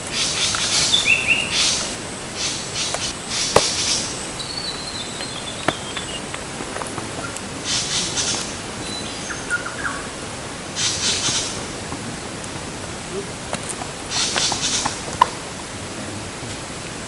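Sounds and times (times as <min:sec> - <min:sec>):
birds whistling: 0:00.0 - 0:06.5, 0:07.1 - 0:11.8, 0:14.1 - 0:15.4
high hissing rustle: 0:00.0 - 0:17.0.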